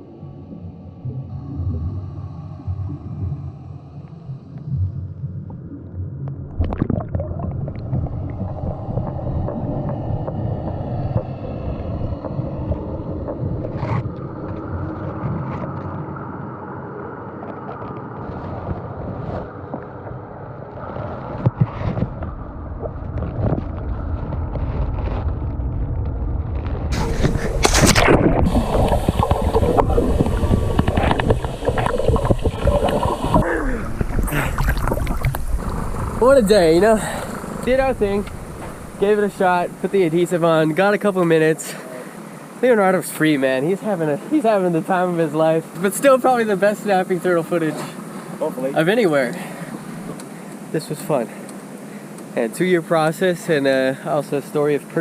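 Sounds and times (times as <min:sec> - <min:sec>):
muffled underwater rumble: 0:00.0 - 0:43.0
water splashing: 0:05.4 - 0:16.4, 0:26.9 - 0:50.7.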